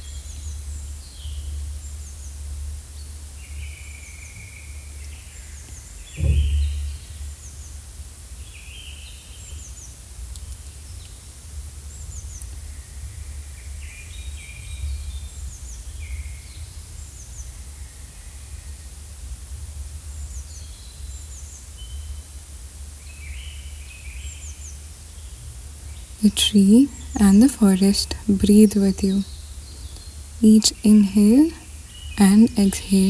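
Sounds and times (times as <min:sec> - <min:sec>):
small birds chirping: 0:25.9 - 0:33.0.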